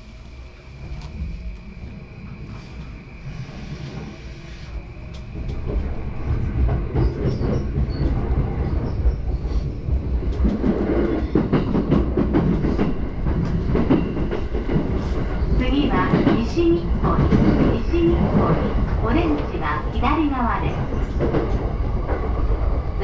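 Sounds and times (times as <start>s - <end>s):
train rumbling on rails: 0.0s - 23.0s.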